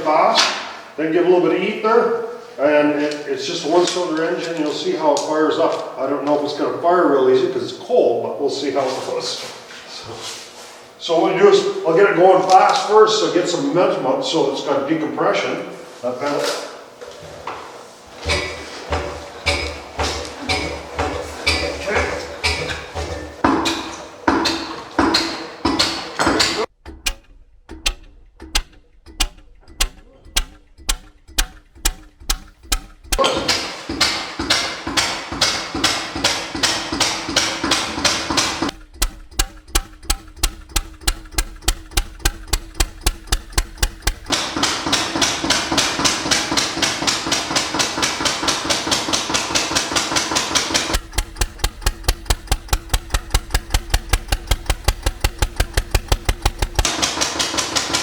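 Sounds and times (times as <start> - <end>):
stationary engine knocking: 18.1 - 58.0.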